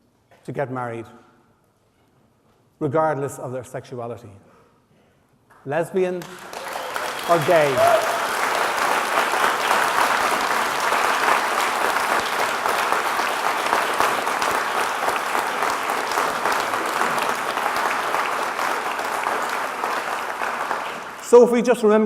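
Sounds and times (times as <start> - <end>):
audience applauding: 6.2 - 21.6.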